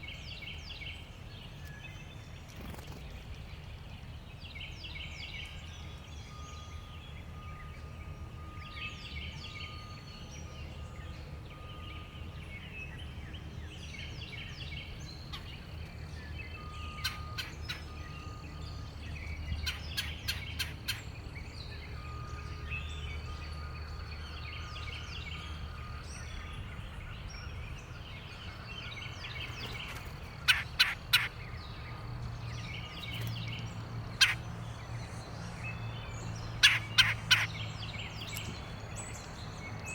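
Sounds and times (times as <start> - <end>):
birds chirping and calling: 13.4 - 39.9.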